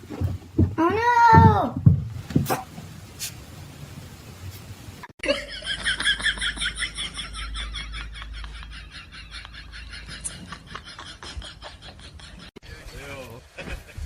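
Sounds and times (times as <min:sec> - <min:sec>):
person laughing hard: 0:05.2 - 0:12.5.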